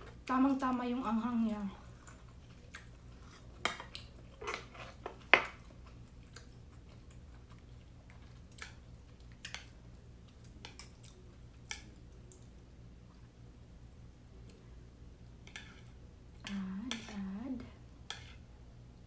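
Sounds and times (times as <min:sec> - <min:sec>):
person chewing food: 0:01.9 - 0:12.7.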